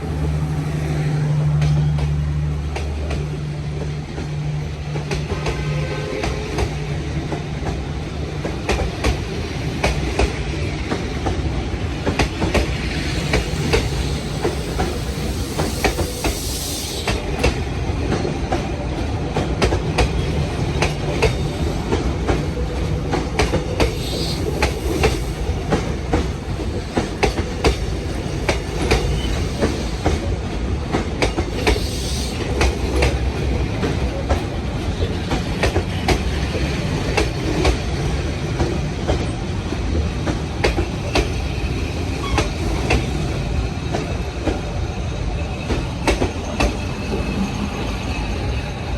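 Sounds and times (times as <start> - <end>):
train carriages rumbling: 0.0 - 48.9
wheel squealing on rail: 13.0 - 17.5, 20.0 - 30.3, 31.3 - 33.2, 40.6 - 48.9.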